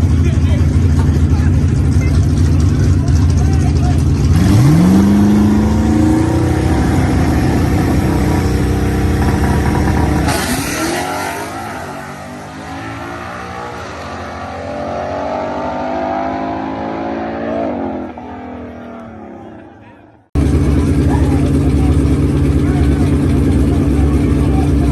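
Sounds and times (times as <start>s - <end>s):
car engine revving: 0.0s - 19.6s, 20.4s - 24.9s.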